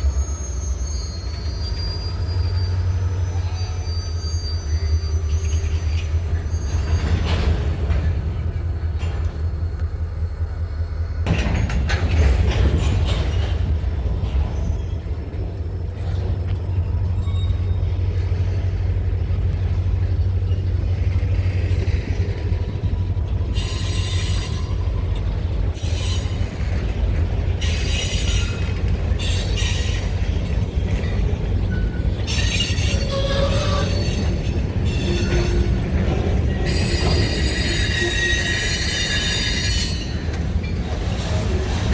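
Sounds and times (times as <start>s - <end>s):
high-pitched wheel squeal: 0.0s - 7.4s, 23.5s - 25.2s, 31.0s - 35.9s, 36.5s - 40.8s
freight train rumbling past: 0.0s - 41.9s.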